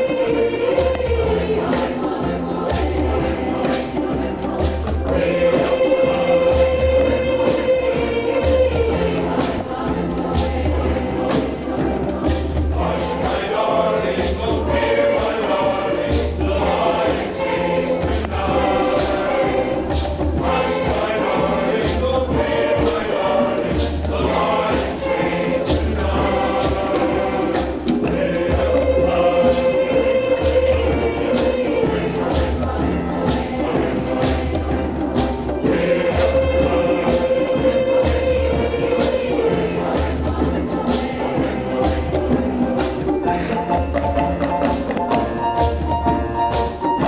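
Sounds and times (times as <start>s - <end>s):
choir singing: 0.0s - 47.0s
light percussion: 0.0s - 47.0s.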